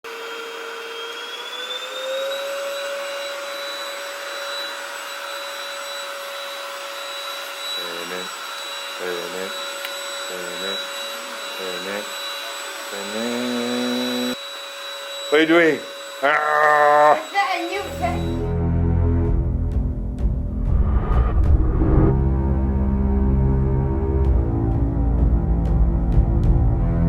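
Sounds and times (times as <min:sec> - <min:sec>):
stick vacuum cleaner running: 0:00.1 - 0:18.6
person speaking: 0:16.2 - 0:18.4.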